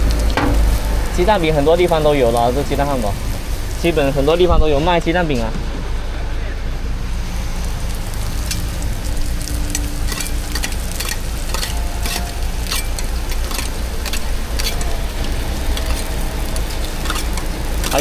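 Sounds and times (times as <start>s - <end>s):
pancakes sizzling in oil: 7.3s - 18.0s.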